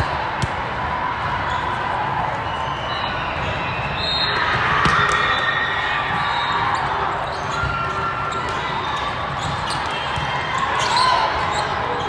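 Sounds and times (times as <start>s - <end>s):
volleyball being hit and bounced: 0.0s - 0.6s
din of busy sports hall: 0.0s - 12.0s.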